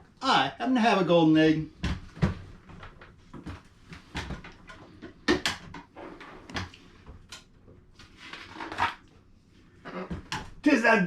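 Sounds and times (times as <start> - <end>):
objects knocking and clattering: 1.8 - 6.7.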